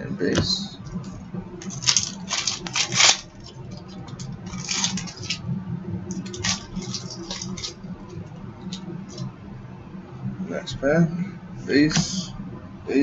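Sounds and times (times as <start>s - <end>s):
low hum: 0.0s - 13.0s
cards rustling: 1.6s - 5.4s, 6.1s - 7.8s
foil wrapper crinkling: 1.6s - 5.4s, 6.1s - 7.8s.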